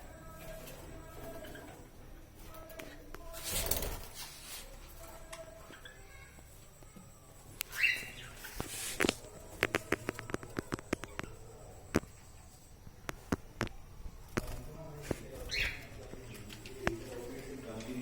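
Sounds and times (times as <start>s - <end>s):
parrot chirp: 7.6s - 8.6s
parrots clicking and tapping: 8.6s - 12.1s.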